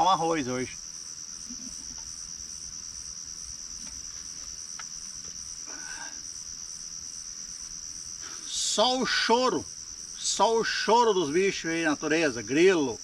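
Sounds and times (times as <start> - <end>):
crickets chirping: 0.0 - 13.0
faint clicks: 3.8 - 5.4.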